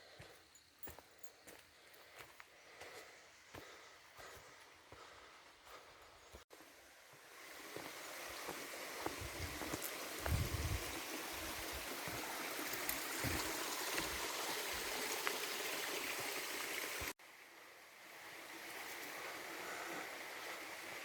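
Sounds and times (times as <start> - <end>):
rushing water of a stream: 6.5 - 21.0.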